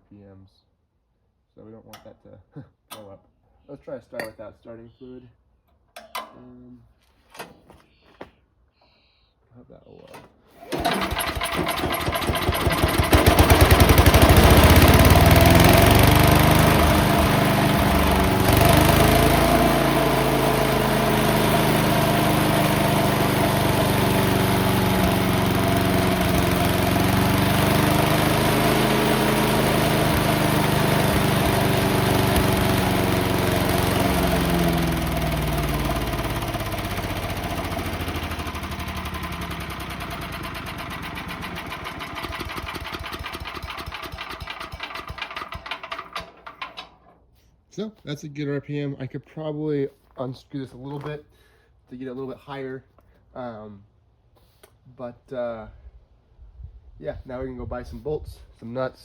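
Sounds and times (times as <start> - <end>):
small engine revving at high speed: 10.8 - 43.9.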